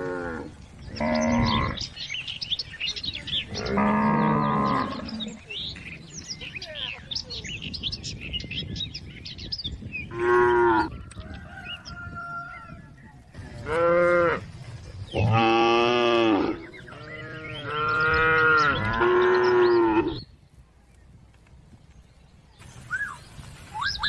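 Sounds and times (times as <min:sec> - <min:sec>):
cow mooing: 0:00.0 - 0:01.8, 0:03.5 - 0:05.4, 0:15.2 - 0:20.2.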